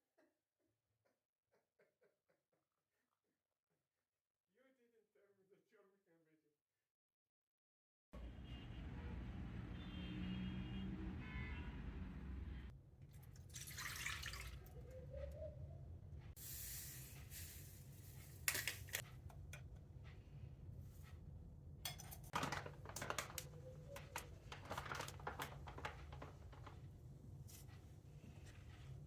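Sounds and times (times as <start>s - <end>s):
dishes and utensils clicking: 21.9s - 26.7s.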